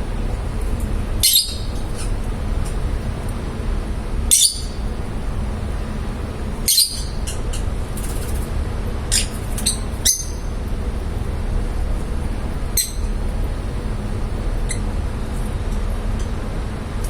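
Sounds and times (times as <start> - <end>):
low background hum: 0.0 - 17.0
parrot chirps: 1.2 - 2.2, 4.3 - 4.8, 6.6 - 7.6, 9.1 - 10.6, 12.8 - 13.1.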